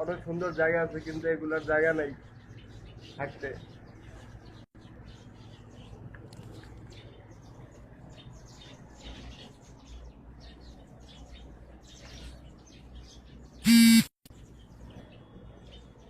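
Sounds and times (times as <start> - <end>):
sparrows chirping: 0.0 - 16.0
loud buzzy tone: 13.7 - 14.2.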